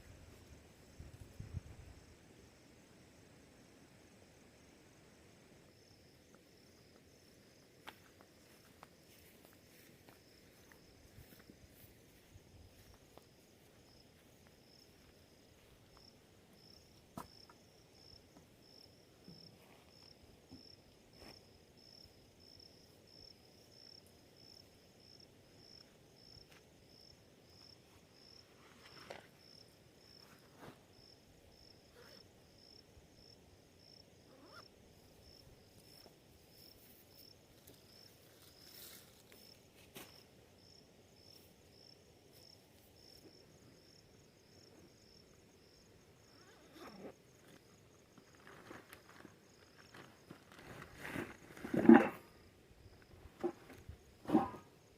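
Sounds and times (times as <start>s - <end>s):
crickets chirping: 0.0s - 54.9s.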